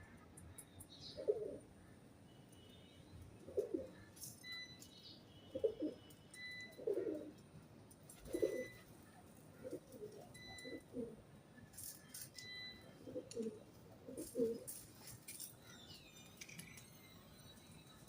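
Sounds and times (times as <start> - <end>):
pigeon cooing: 1.2 - 1.7, 3.5 - 4.0, 5.5 - 6.0, 6.7 - 7.4, 8.2 - 8.9, 9.6 - 11.2, 13.0 - 14.8
faint high chirps: 15.5 - 18.0.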